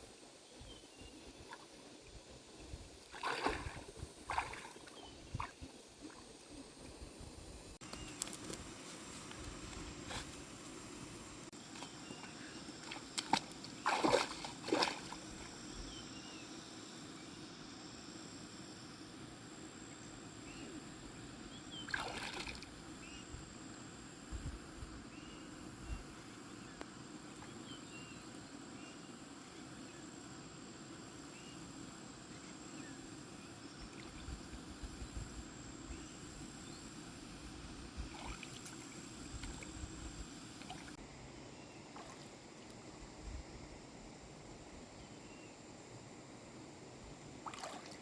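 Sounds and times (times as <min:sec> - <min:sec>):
water sloshing and splashing: 0:03.1 - 0:06.3, 0:12.8 - 0:15.6, 0:21.9 - 0:22.7, 0:38.1 - 0:39.7, 0:47.4 - 0:48.0.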